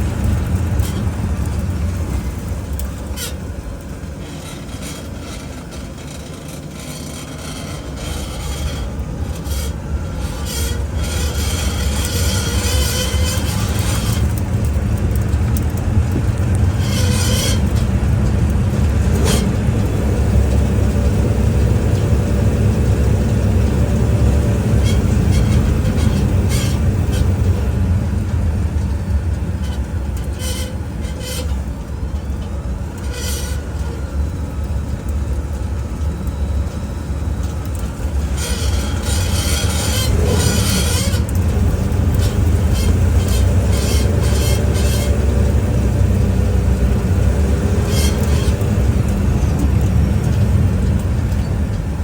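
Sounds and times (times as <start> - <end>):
road and tyre rumble: 0.0 - 52.0
metallic grinding bursts: 4.2 - 15.6, 16.2 - 27.8, 29.0 - 31.8, 32.9 - 34.1, 38.0 - 51.7.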